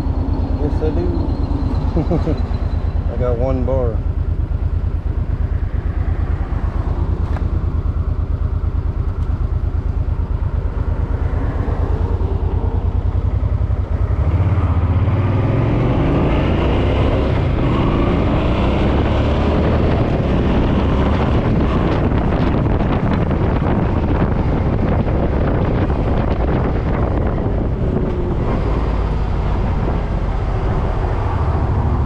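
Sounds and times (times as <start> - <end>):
motorcycle engine: 0.0 - 32.0
wind noise on microphone: 8.9 - 32.0.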